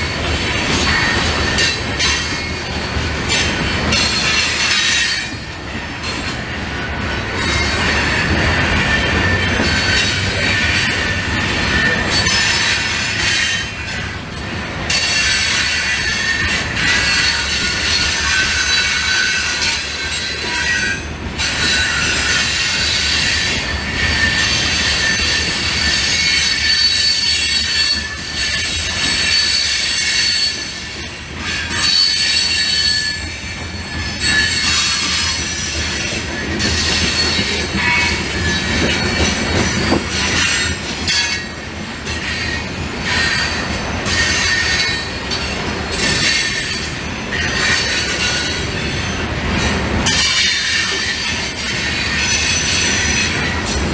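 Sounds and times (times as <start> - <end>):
train wheels rumbling on rail: 0.0 - 53.9
wheel squeal: 7.4 - 14.0, 14.9 - 41.5.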